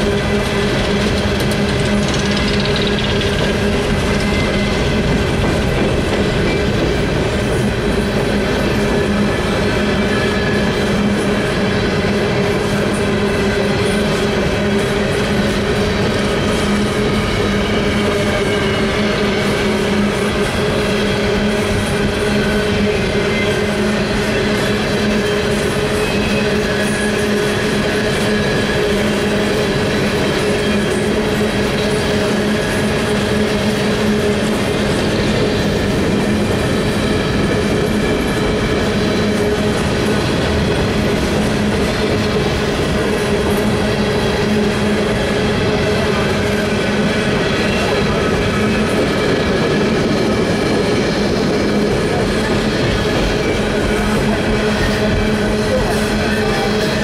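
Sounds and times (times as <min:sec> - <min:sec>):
freight train wheels rumbling on rails: 0:00.0 - 0:57.0
steady ringing tone: 0:01.6 - 0:05.3.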